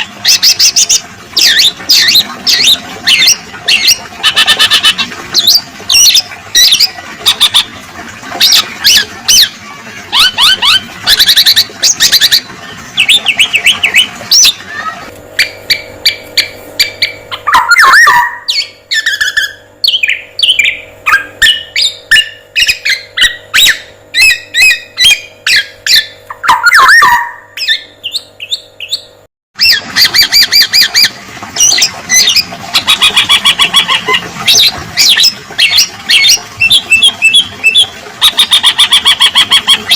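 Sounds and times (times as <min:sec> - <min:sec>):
oriole calls: 0:00.0 - 0:29.0
steady hum: 0:00.0 - 0:39.9.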